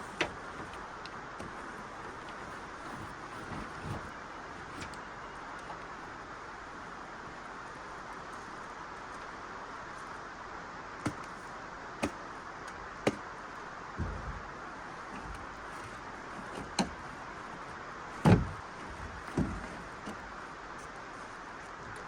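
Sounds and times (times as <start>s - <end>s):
knocks and thuds of gear: 0.0s - 5.0s, 11.0s - 11.4s, 12.0s - 12.2s, 13.0s - 13.3s, 14.0s - 20.4s
vehicle doors opening and shutting: 0.0s - 5.0s, 14.0s - 20.4s.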